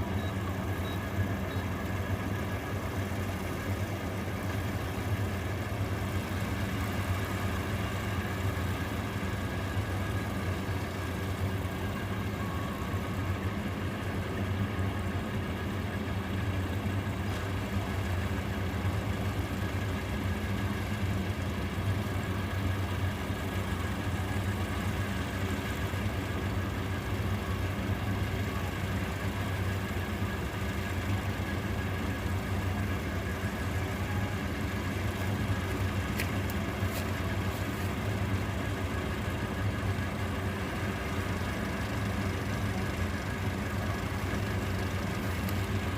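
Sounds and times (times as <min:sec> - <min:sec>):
harvester engine running: 0:00.0 - 0:45.9.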